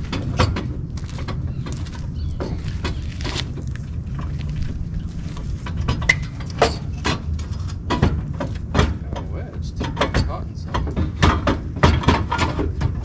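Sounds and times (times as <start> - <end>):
steady low hum: 0.0 - 13.0
knocks and clanks of tools: 5.6 - 13.0.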